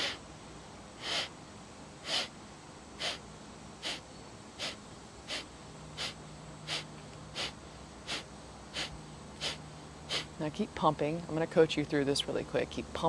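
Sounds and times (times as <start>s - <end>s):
sharp forced nasal exhales: 0.0s - 0.2s, 1.0s - 1.4s, 2.0s - 2.4s, 3.0s - 10.4s.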